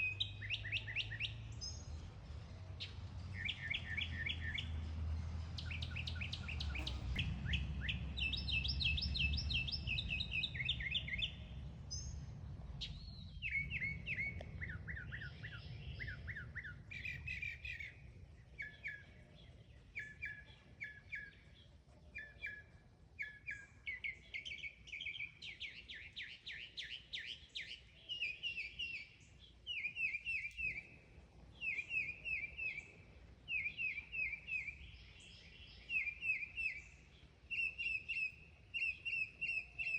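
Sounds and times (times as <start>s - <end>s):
mockingbird singing: 0.0s - 1.9s, 5.6s - 12.2s, 12.8s - 39.9s
low rumble: 7.2s - 16.6s.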